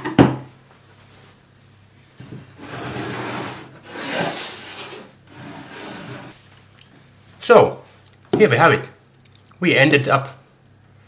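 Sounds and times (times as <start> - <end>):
utensil scraping a dish: 2.6 - 6.4
sharp knocks: 8.4 - 8.6.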